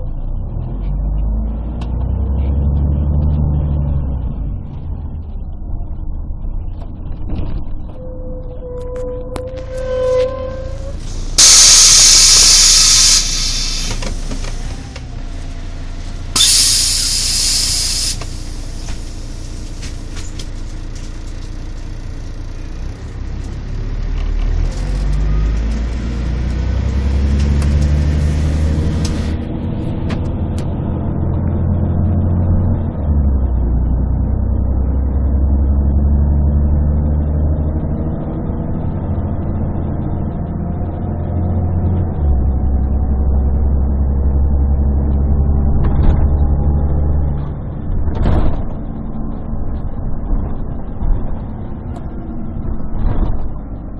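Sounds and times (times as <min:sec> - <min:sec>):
bus diesel engine pulling away: 0:10.8 - 0:53.9
compressed air hisses: 0:11.1 - 0:14.6, 0:16.4 - 0:19.2.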